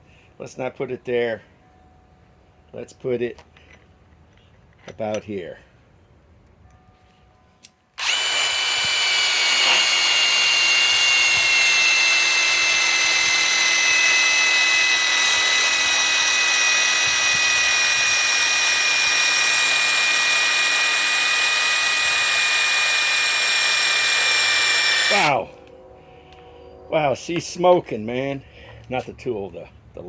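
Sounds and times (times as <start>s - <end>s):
impact wrench motor whine: 8.0s - 25.7s.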